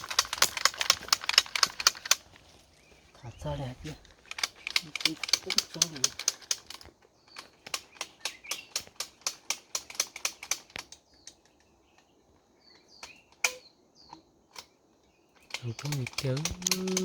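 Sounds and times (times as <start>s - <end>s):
sharp clicks and taps: 15.7s - 17.0s.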